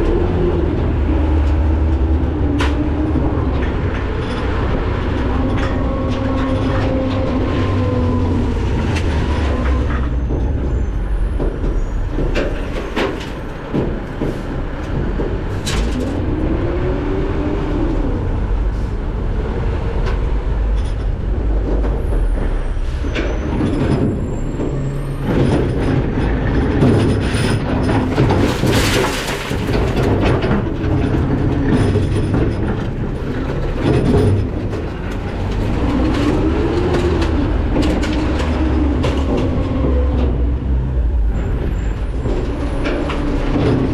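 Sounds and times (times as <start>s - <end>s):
garbage truck running: 0.0s - 43.9s
metal rattling and clanking: 20.0s - 43.9s.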